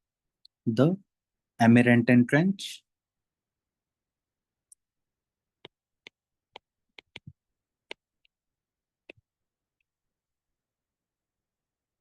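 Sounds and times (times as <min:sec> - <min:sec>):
sharp irregular clicks: 0:05.6 - 0:08.4.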